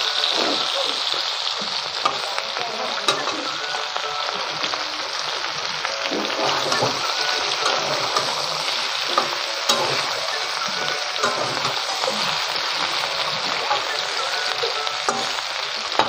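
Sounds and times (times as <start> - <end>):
vegetables sizzling in oil: 0.0 - 16.0
metal spatula scraping pan: 6.1 - 13.8.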